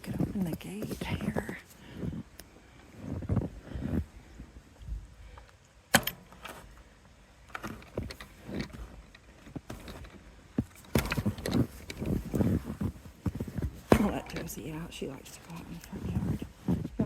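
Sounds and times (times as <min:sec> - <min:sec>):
gate latch metallic click: 0:05.9 - 0:06.4
knocks and rustling: 0:07.5 - 0:14.9.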